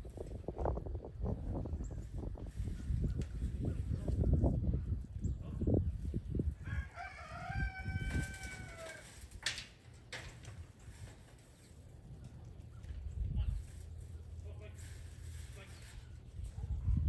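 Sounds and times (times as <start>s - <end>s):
rooster crowing: 6.6s - 9.2s.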